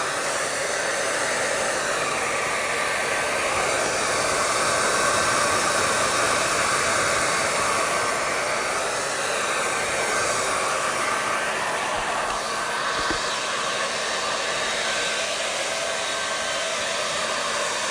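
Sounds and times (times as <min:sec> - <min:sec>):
hair dryer running: 0:00.0 - 0:17.9.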